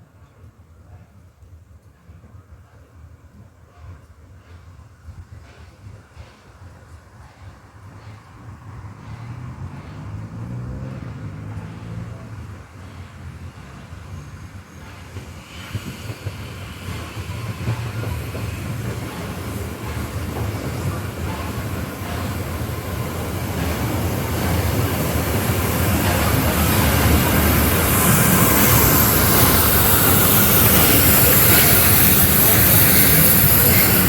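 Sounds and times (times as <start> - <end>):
steam train rumble and rail noise: 0.0 - 34.0
locomotive steam hiss: 12.4 - 34.0.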